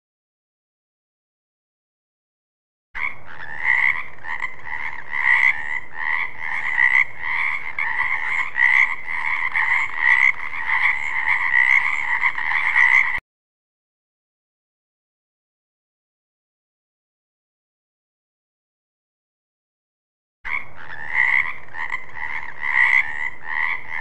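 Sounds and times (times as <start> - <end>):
frog croaking: 3.0 - 13.2, 20.5 - 24.0.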